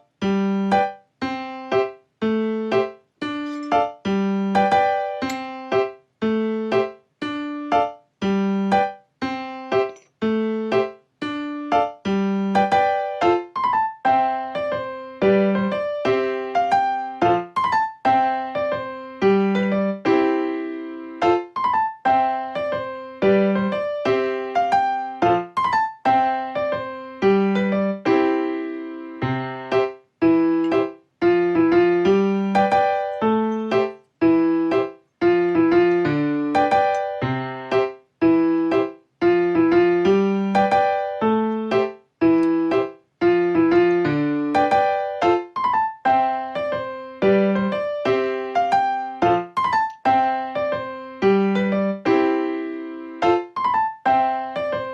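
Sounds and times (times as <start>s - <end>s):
gentle electric piano tune: 0.0s - 54.9s.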